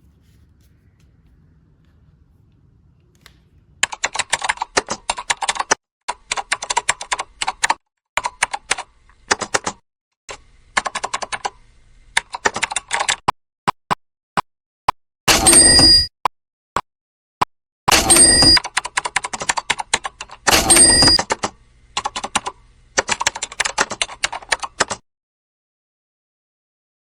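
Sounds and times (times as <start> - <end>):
rapid keyboard-like clicking: 3.2 - 9.8, 10.7 - 11.6, 12.2 - 13.3, 17.9 - 25.0.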